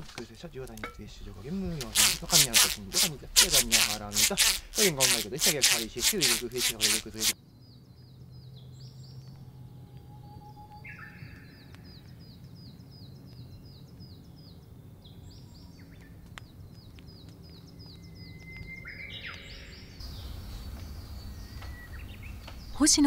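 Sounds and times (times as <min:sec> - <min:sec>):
songbird chirping: 0:00.2 - 0:23.0
scratchy bird calls: 0:01.5 - 0:07.4.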